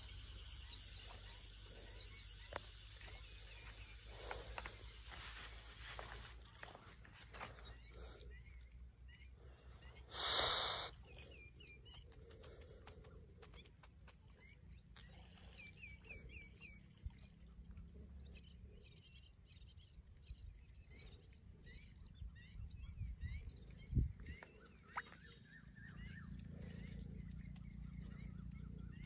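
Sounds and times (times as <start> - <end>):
birds chirping: 0.0 - 29.0
wind rumble on microphone: 22.0 - 25.0.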